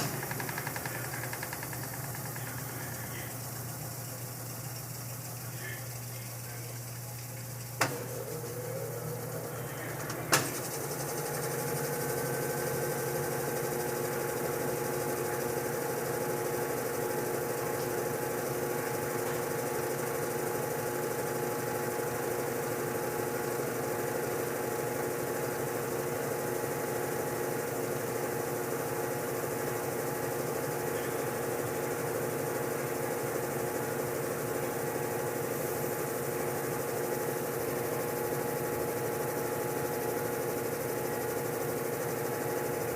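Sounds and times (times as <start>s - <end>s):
washing machine click: 0.0s - 4.2s, 6.8s - 8.6s, 9.9s - 10.8s
washing machine motor hum: 0.0s - 42.9s.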